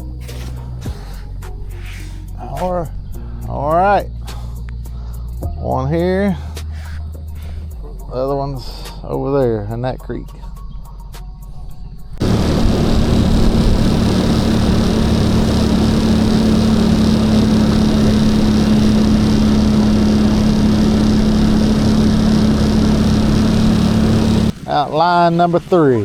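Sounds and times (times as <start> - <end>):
wide rushing noise: 12.2 - 25.1
boat motor running: 12.2 - 26.0.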